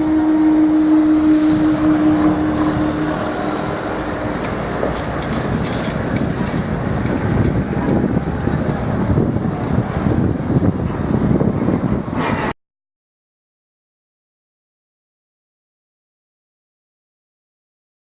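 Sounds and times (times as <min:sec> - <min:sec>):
steady hum: 0:00.0 - 0:05.7
traffic rumbling: 0:00.0 - 0:12.6.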